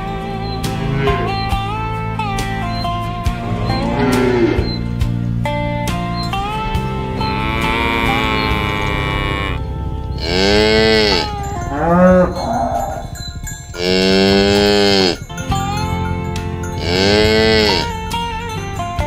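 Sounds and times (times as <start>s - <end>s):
cows mooing: 0.0s - 19.0s.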